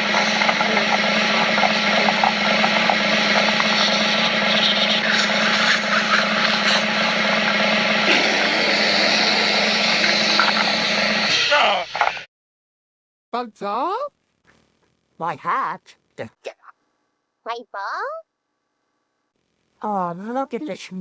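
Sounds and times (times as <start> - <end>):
cartoon vacuum cleaner suction: 0.0 - 12.2.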